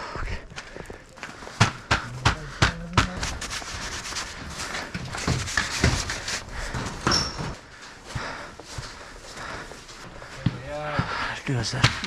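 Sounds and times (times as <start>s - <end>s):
irregular knocks and thuds: 1.4s - 3.4s, 4.8s - 7.6s.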